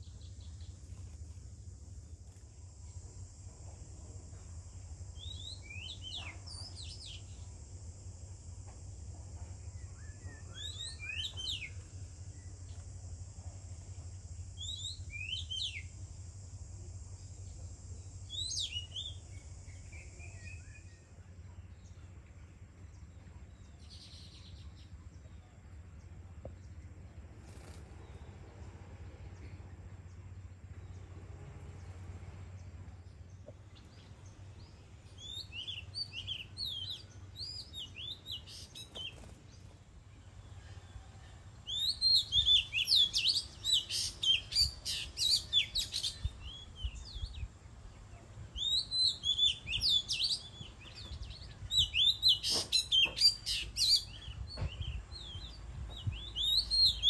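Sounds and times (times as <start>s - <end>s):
steady high hiss: 0.0s - 23.1s, 25.8s - 57.0s
magpie-robins singing: 41.7s - 47.3s, 48.5s - 57.0s.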